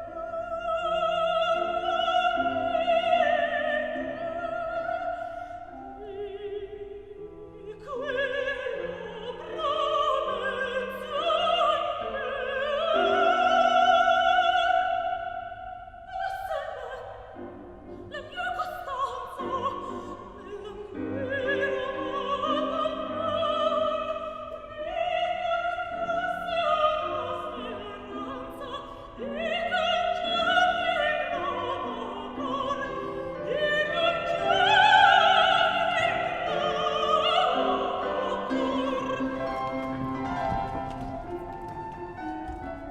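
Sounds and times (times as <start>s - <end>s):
operatic singing with vibrato: 0.0s - 42.9s
instrumental accompaniment: 38.0s - 42.9s.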